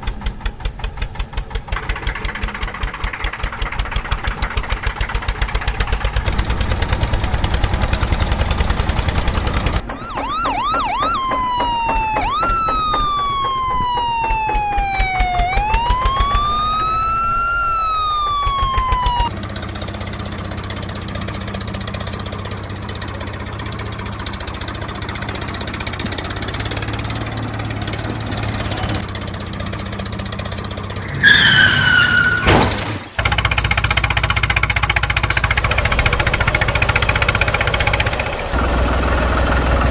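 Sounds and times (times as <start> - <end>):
engine running: 0.0 - 39.9
siren yelps and wail: 9.8 - 19.3.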